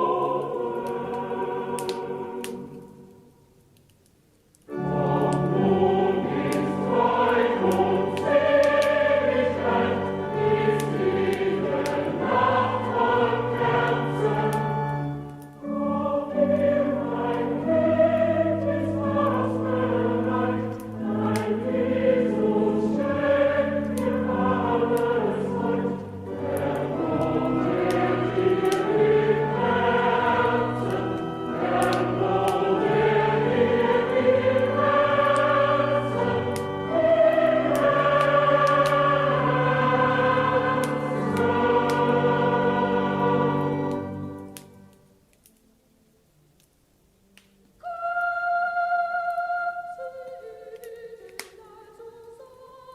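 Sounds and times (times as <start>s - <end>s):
choir singing: 0.0s - 3.3s, 4.7s - 44.7s, 47.8s - 52.9s
instrumental accompaniment: 4.7s - 45.1s.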